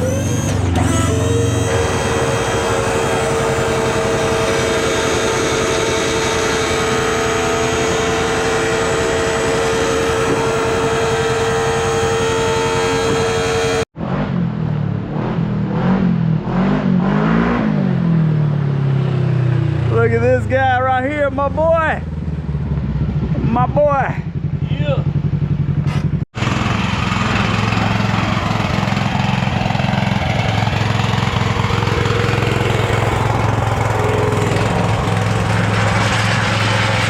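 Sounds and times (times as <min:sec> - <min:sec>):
truck engine pulling under load: 0:00.0 - 0:13.6, 0:25.8 - 0:37.0
engine pitch rising and falling: 0:00.0 - 0:37.0
engine whine: 0:00.0 - 0:37.0.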